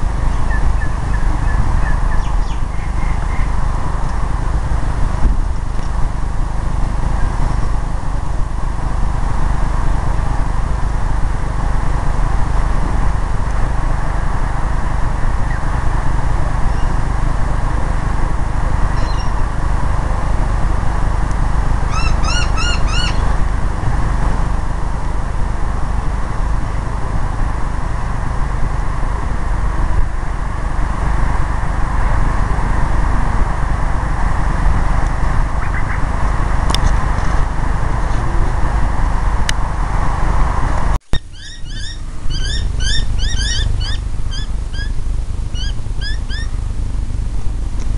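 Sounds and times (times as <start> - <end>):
low rumble and hiss: 0.0 - 47.9
bird ringing notes: 19.0 - 19.4, 21.9 - 23.3, 41.1 - 46.5.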